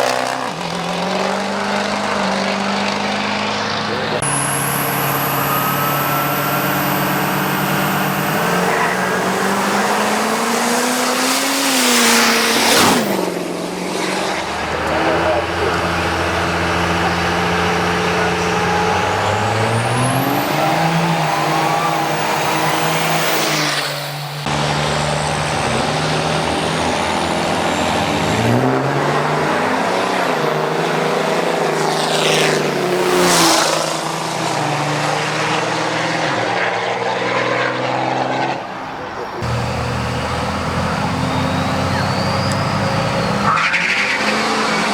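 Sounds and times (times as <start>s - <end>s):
drag racing engines accelerating: 0.0s - 44.9s.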